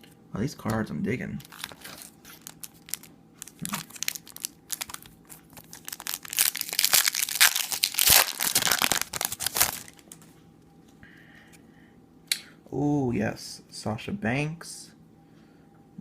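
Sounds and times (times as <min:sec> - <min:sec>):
foil wrapper crinkling and tearing: 0:01.4 - 0:10.1.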